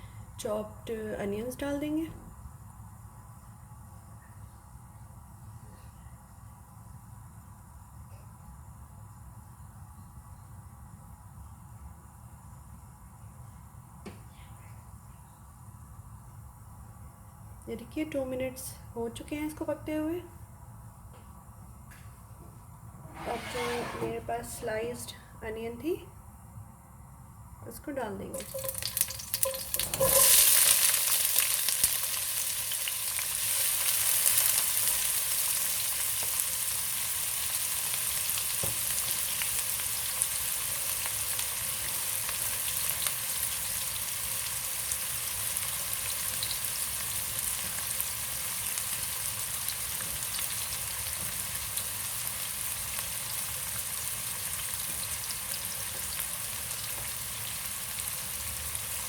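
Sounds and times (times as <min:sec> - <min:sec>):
onions sizzling in hot oil: 0:28.3 - 0:59.0.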